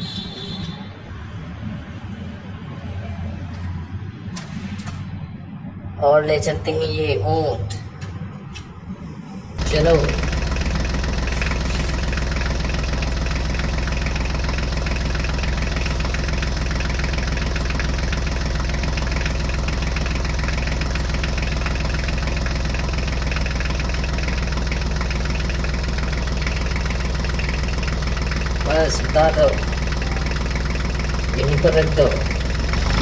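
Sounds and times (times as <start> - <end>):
toy tractor engine chugging: 9.6 - 33.0.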